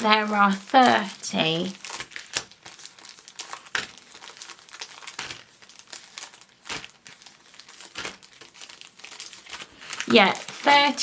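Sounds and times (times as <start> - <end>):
foil packs crinkling: 0.0 - 11.0.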